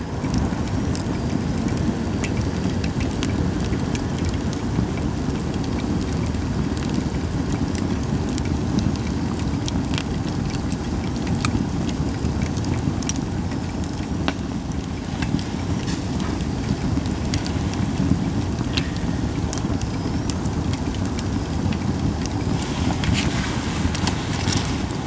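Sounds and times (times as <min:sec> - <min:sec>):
fire low rumble: 0:00.0 - 0:25.0
firewood crackling and popping: 0:00.0 - 0:25.0.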